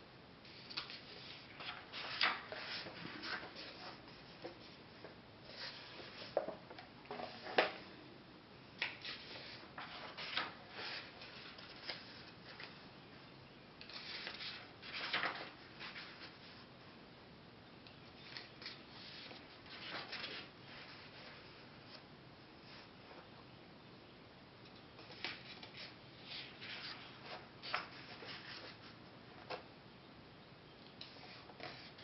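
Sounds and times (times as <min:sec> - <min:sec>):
paper pages turning: 0:00.6 - 0:04.6, 0:08.8 - 0:12.8, 0:13.9 - 0:16.4, 0:18.2 - 0:21.4, 0:25.0 - 0:28.8.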